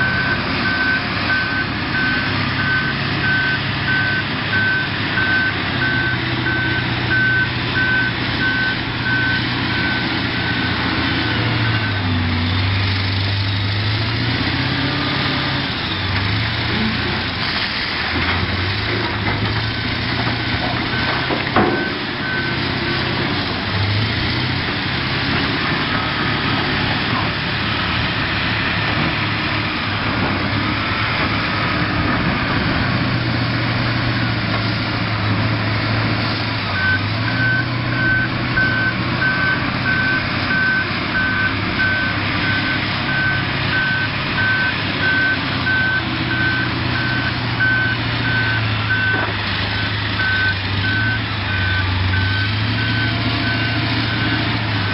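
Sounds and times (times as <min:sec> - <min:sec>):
reversing alarm beeps: 0:00.0 - 0:12.2, 0:36.7 - 0:54.9
heavy diesel machine running: 0:00.0 - 0:54.9.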